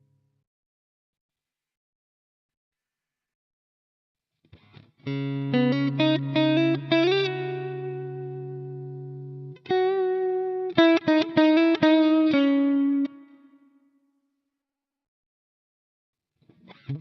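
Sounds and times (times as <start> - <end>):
electric guitar notes: 5.0 - 13.4.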